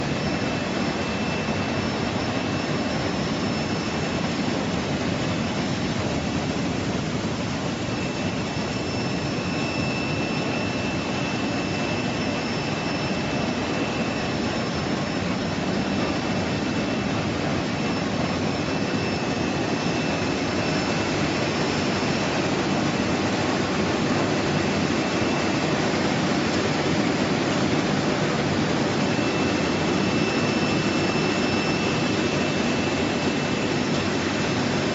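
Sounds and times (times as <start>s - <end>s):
faint high whine: 0.0s - 34.9s
machinery and agitated water: 0.0s - 34.9s.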